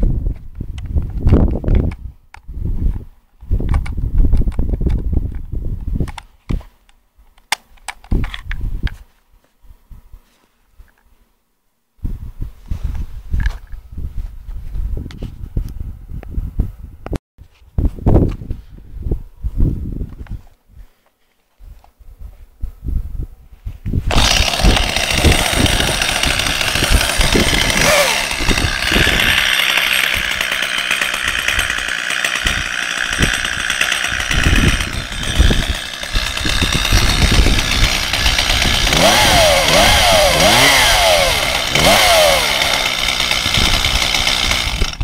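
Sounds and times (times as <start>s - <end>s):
chainsaw running: 24.1s - 45.0s.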